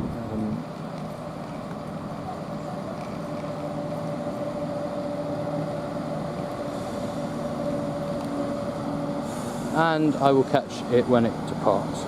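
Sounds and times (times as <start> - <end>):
diesel train engine idling: 0.0 - 12.0.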